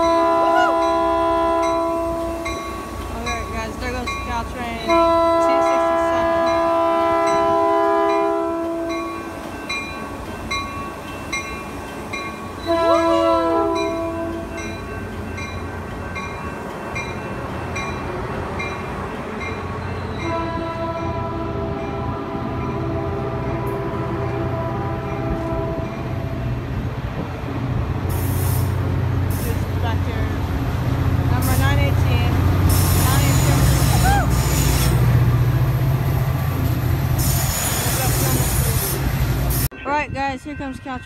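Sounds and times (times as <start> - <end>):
train air horn blasts: 0.0 - 2.5, 4.8 - 9.2, 12.6 - 14.6, 20.2 - 26.1, 32.7 - 35.0
crossing bell ringing: 0.0 - 26.4, 39.4 - 41.0
train rumble: 0.0 - 41.0.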